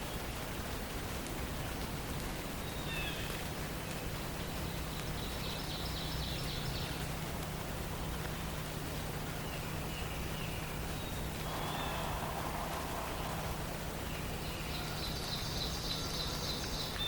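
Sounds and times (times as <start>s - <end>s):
forest ambience hiss: 0.0s - 17.0s
songbird calls: 8.9s - 17.0s.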